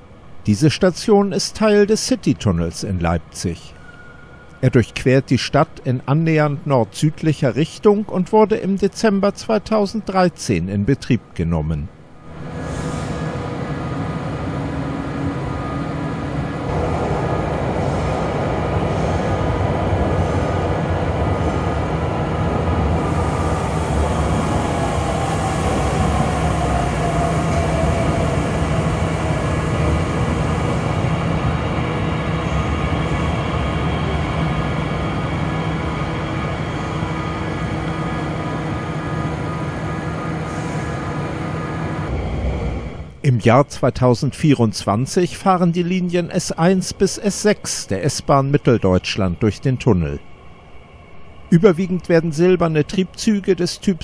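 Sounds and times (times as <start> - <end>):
electric train whine: 3.7 - 4.6, 12.0 - 43.2, 45.8 - 54.0
steady hum: 4.7 - 54.0.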